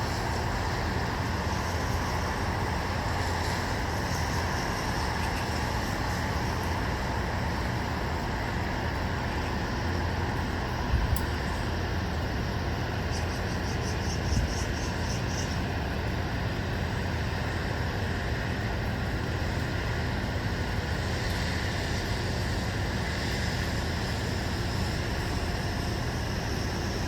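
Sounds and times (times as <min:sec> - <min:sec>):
distant road traffic hum: 0:00.0 - 0:27.0
faint high ticks: 0:11.1 - 0:11.5.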